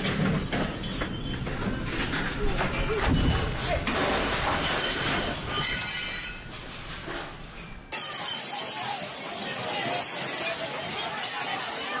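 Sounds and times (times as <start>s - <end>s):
glass and crockery crashing: 0.0s - 6.9s, 7.6s - 12.0s.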